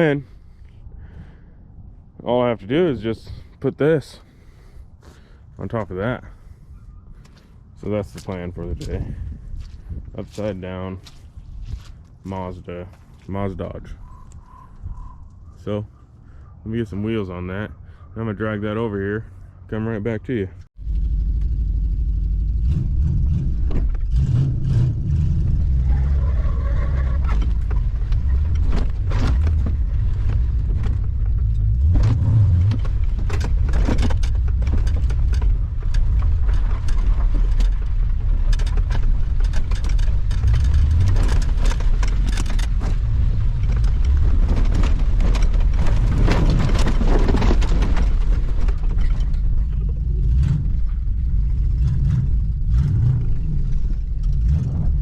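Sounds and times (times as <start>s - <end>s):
knocks and rattles: 27.0s - 55.0s.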